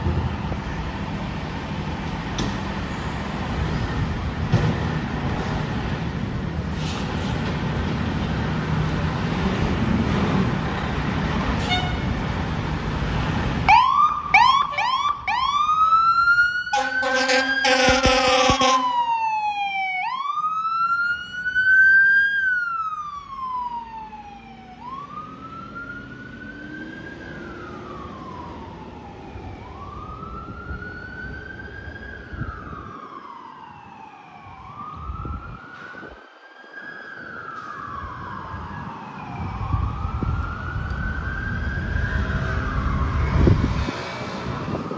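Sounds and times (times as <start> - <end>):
heavy truck engine rumbling: 0.0 - 15.8, 16.8 - 18.9, 37.9 - 44.9
air horn blasts: 11.6 - 12.2, 16.7 - 19.0
siren whooping and wailing: 13.6 - 44.9.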